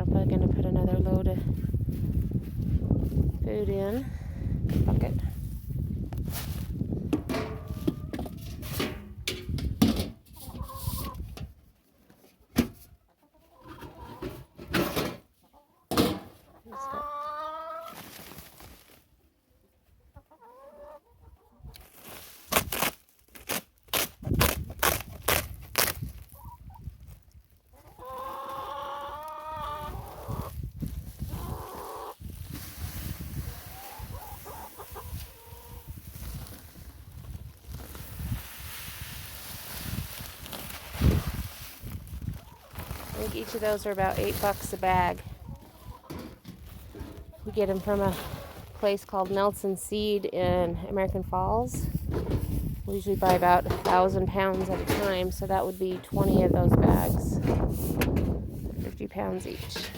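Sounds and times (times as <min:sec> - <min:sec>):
chickens clucking: 0:10.2 - 0:11.4, 0:12.1 - 0:18.2, 0:19.6 - 0:21.9, 0:27.7 - 0:32.4, 0:33.3 - 0:36.0, 0:42.2 - 0:51.2.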